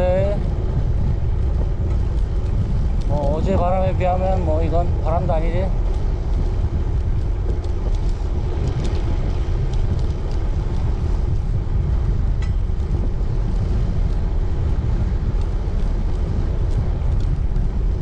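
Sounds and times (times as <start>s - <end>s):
wind rumbling on microphone: 0.0s - 18.0s
faint ticks: 0.2s - 18.0s.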